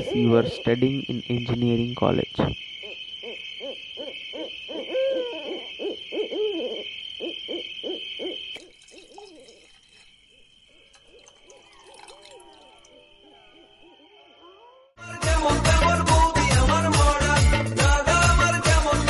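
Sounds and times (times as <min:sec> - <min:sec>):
hooting bird calls: 0:00.0 - 0:14.9.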